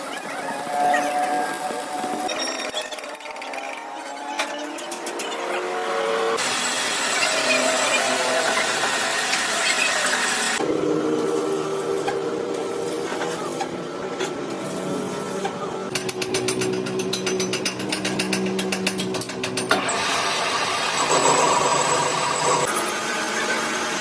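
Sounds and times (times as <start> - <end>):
machine hum: 6.2 - 24.0.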